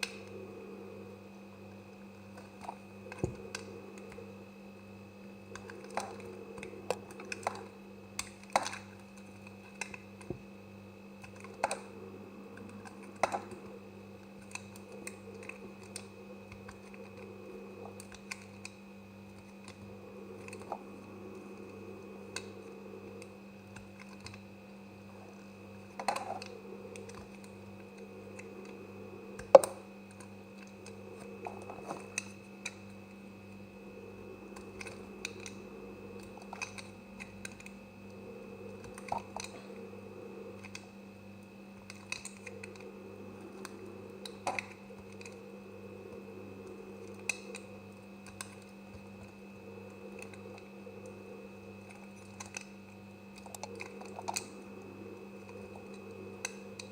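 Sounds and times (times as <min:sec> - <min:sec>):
background hum: 0:00.0 - 0:56.9.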